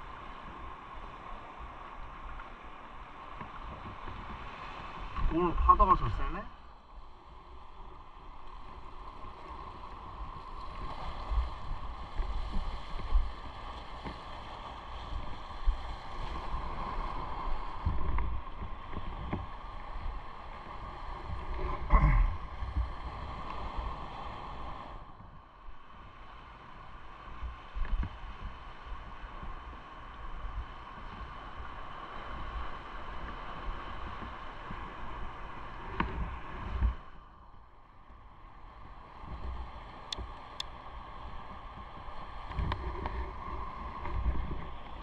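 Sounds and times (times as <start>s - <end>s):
wind over microphone: 41.2s - 45.0s.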